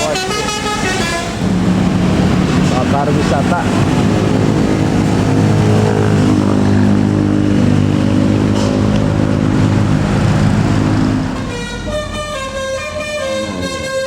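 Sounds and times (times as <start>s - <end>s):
multi-tone bus horn: 0.0s - 1.8s, 8.1s - 14.0s
bus diesel engine passing: 0.0s - 14.0s.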